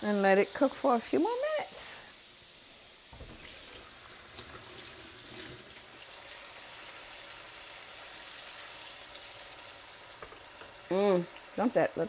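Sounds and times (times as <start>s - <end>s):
ribs sizzling in hot oil: 0.0s - 12.0s.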